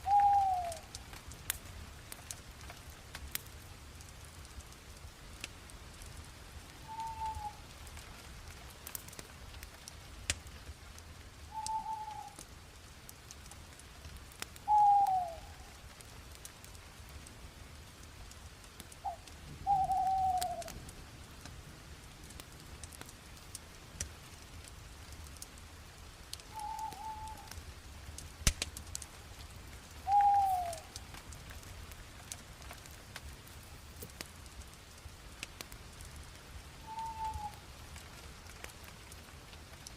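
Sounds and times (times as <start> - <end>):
bird calling: 0.0 - 0.9, 6.9 - 7.6, 11.5 - 12.4, 14.7 - 15.5, 19.0 - 20.7, 26.5 - 27.5, 30.1 - 31.0, 36.9 - 37.6
wood fire crackling: 0.0 - 39.9.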